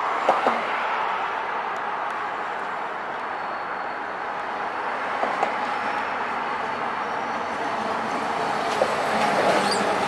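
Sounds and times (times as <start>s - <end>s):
diesel train rumbling: 3.4s - 10.0s
sharp clicks of train wheels: 8.6s - 10.0s.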